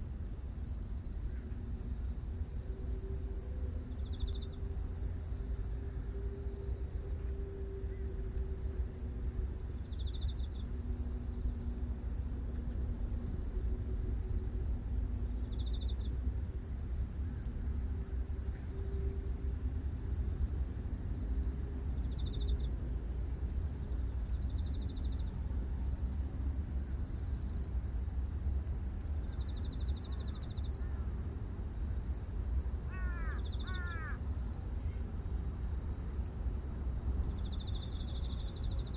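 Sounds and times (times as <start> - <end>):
insect high-pitched drone: 0.1 - 38.9
insect trills: 29.2 - 38.9.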